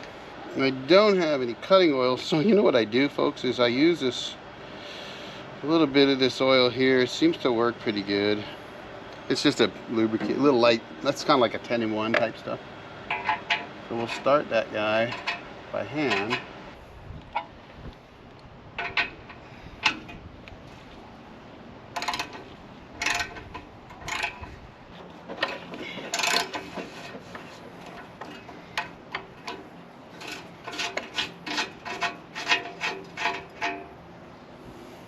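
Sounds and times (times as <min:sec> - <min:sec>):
metal scraping and clicking: 0:13.1 - 0:14.4, 0:15.0 - 0:16.5, 0:18.8 - 0:20.2, 0:21.9 - 0:34.0.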